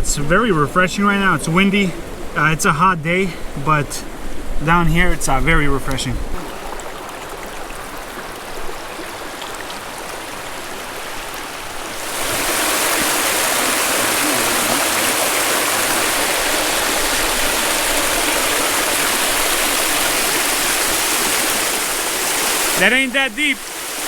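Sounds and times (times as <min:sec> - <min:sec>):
water rushing over rocks: 0:06.4 - 0:24.0.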